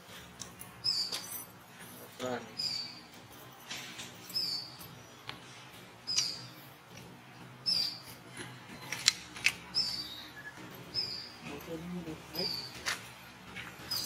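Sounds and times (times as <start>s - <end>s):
outdoor background hiss: 0.0s - 14.0s
bird high chirp: 0.8s - 1.2s, 2.6s - 3.1s, 4.3s - 4.9s, 7.6s - 8.1s, 9.8s - 11.4s.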